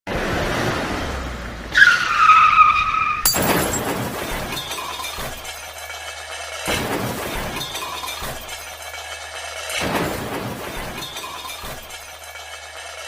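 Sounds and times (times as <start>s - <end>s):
car tyres screeching: 0.1s - 3.3s
crash with shattering glass: 3.2s - 13.0s.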